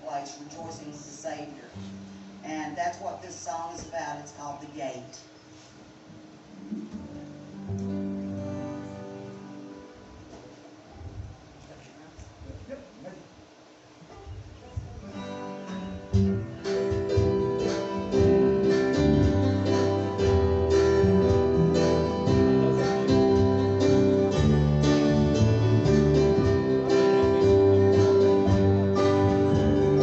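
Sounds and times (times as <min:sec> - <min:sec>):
strummed acoustic guitar: 0:06.1 - 0:10.7, 0:15.0 - 0:30.0
gospel band playing: 0:15.1 - 0:30.0.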